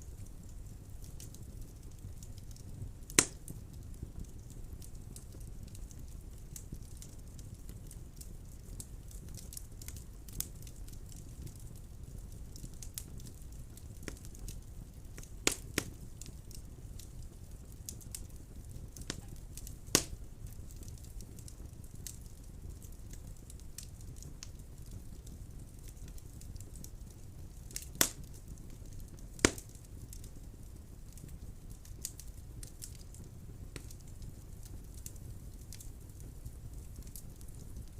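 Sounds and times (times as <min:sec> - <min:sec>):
low rumble of flames: 0:00.0 - 0:37.9
small fire crackles: 0:00.0 - 0:37.9.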